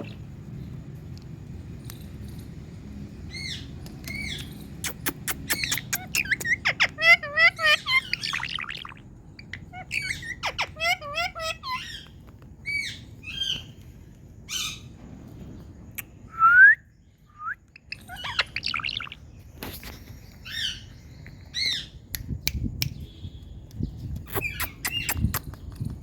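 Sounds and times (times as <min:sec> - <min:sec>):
parakeet chirps and squawks: 0:03.3 - 0:13.7, 0:14.5 - 0:14.9, 0:17.8 - 0:19.2, 0:19.9 - 0:22.0, 0:24.2 - 0:25.7.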